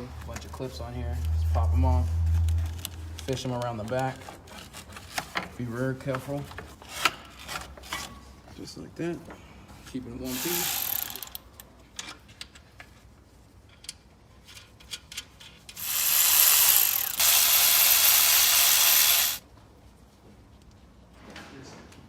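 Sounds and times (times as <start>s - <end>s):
power tool whirring hiss: 10.3s - 11.4s, 15.8s - 19.4s.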